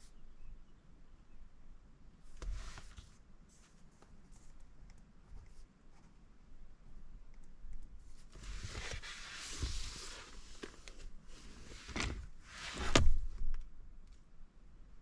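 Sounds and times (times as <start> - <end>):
rustling and handling at a desk: 2.3 - 6.3, 8.0 - 13.6.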